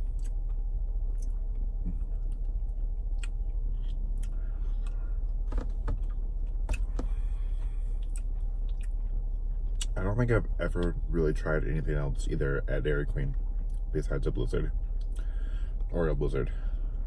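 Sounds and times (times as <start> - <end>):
car interior rumble: 0.0 - 17.0.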